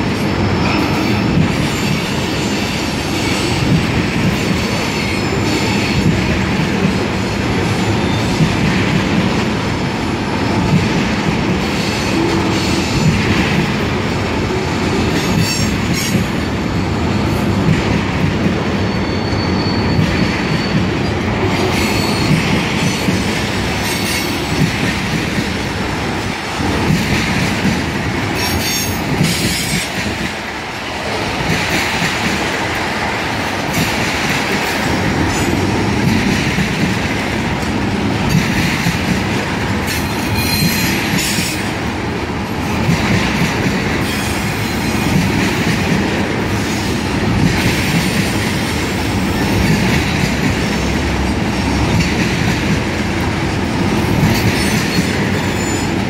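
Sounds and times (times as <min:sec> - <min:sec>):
train wheels rumbling: 0:00.0 - 0:56.0
high-pitched wheel squeals: 0:18.8 - 0:21.2.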